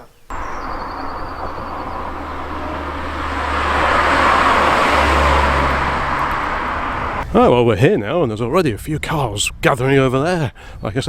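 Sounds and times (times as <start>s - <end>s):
car engine hum: 0.3s - 7.2s
tyre and road noise: 0.3s - 7.3s.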